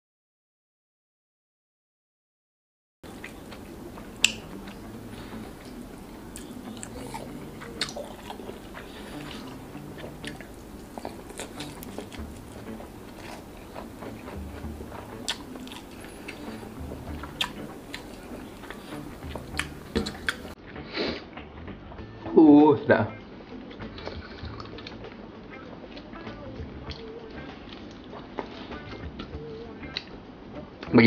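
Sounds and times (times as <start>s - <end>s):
person chewing food: 3.0s - 20.6s, 23.7s - 25.2s, 26.9s - 30.1s.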